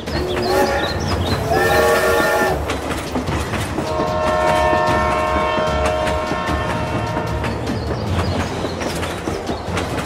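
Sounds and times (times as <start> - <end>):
toy train whistle: 0.2 - 2.6.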